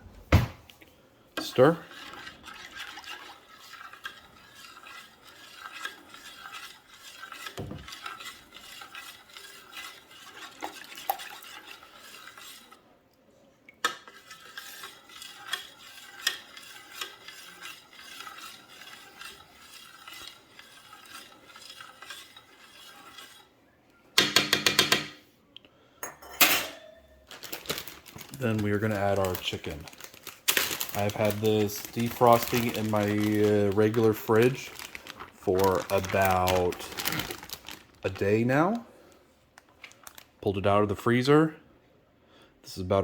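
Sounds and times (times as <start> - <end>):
utensil scraping and clinking container: 1.4 - 12.8, 13.8 - 23.6, 26.0 - 38.8.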